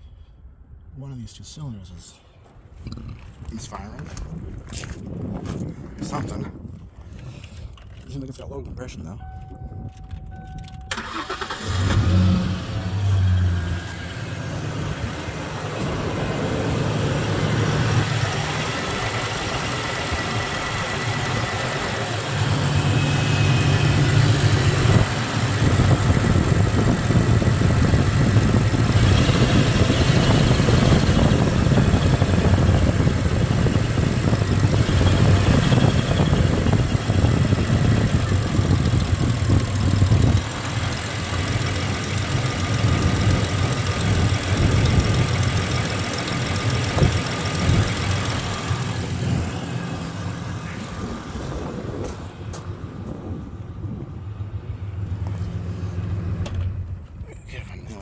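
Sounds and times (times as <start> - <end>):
engine idling with misfire: 10.0 - 52.7
truck engine starting: 10.0 - 57.9.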